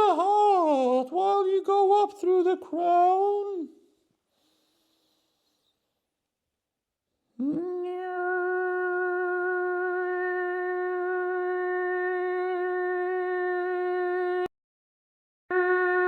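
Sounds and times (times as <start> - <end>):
person holding a long vocal note: 0.0 - 3.7, 7.4 - 14.5, 15.5 - 16.0.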